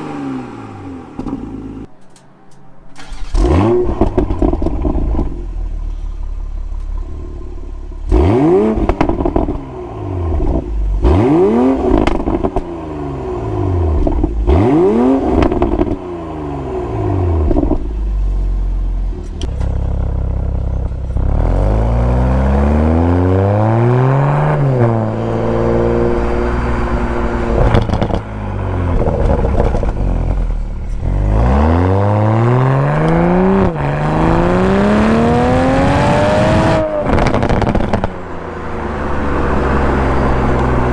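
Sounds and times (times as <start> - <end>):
car engine revving: 3.0 - 18.4, 19.2 - 40.9
exhaust pops: 8.0 - 9.6, 11.9 - 12.7, 26.9 - 28.3, 28.9 - 31.2, 36.8 - 38.2.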